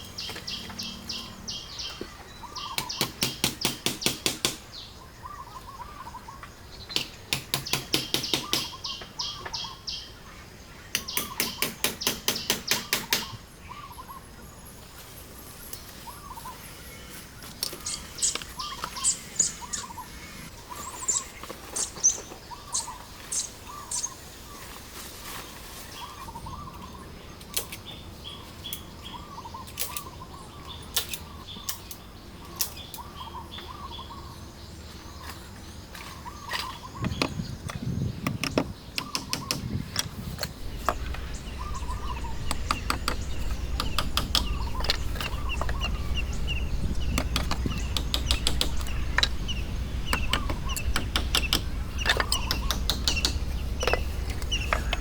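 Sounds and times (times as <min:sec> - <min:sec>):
birds warbling calls: 0:00.0 - 0:14.8, 0:15.6 - 0:24.7, 0:25.9 - 0:55.0
sharp clicks and knocks: 0:02.8 - 0:04.6, 0:06.9 - 0:08.8, 0:37.0 - 0:55.0
low steady rumble: 0:39.5 - 0:55.0.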